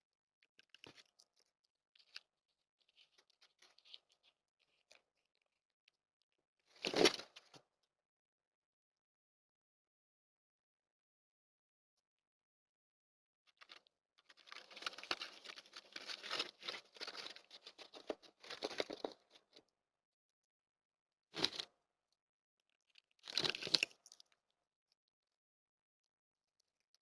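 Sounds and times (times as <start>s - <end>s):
deer crunching food: 14.3s - 19.5s, 23.2s - 24.2s.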